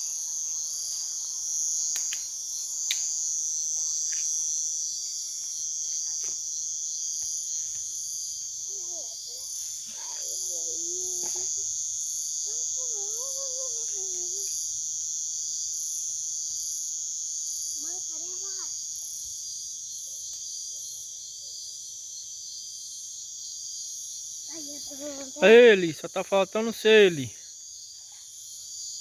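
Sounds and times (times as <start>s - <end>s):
insects trilling in chorus: 0.0s - 29.0s
faint voices: 25.4s - 27.3s.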